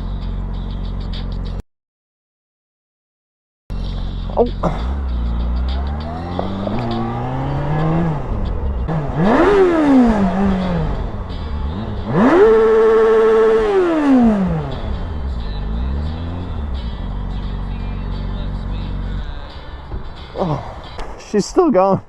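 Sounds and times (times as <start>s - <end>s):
motorcycle engine accelerating: 3.7s - 19.5s.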